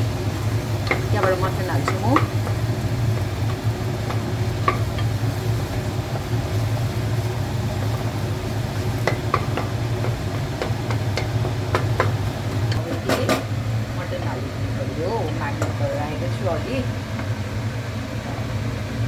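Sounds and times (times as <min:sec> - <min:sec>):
food sizzling in a pan: 0:00.0 - 0:19.0
steady low hum: 0:00.0 - 0:19.0
spoon tapping and scraping pan: 0:00.6 - 0:13.6, 0:15.2 - 0:16.0.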